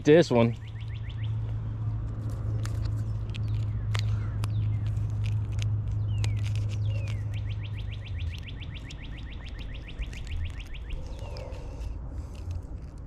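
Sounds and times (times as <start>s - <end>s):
songbird trilling: 0.4s - 1.5s, 6.0s - 11.9s.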